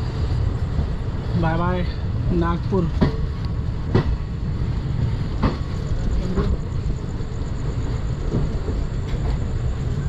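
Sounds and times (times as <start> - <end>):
train coach rumbling: 0.0 - 10.0
wheels clacking on rails: 0.0 - 10.0.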